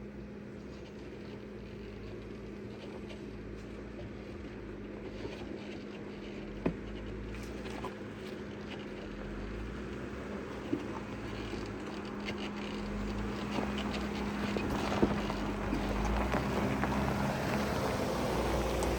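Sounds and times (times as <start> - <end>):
engine hum: 0.0 - 18.9
tyres on rocks: 10.8 - 18.9.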